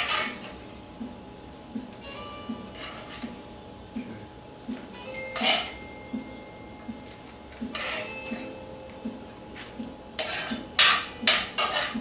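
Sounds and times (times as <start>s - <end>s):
spoon scraping skillet: 0.0s - 0.4s, 2.7s - 3.3s, 7.7s - 8.2s, 10.2s - 12.0s
faint guitar music: 1.7s - 12.0s.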